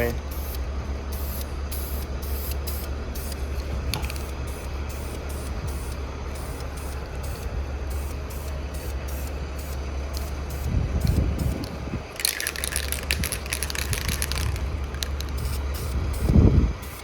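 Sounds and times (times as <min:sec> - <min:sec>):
aerosol spray can hissing: 0:12.2 - 0:15.6.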